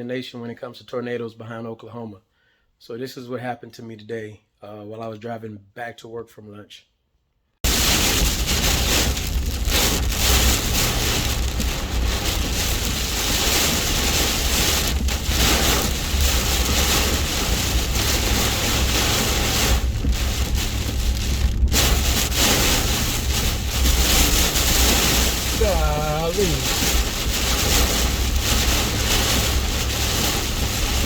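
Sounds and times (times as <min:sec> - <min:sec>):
heavy rain on a truck: 0:07.6 - 0:31.0
low rumble: 0:07.7 - 0:31.0.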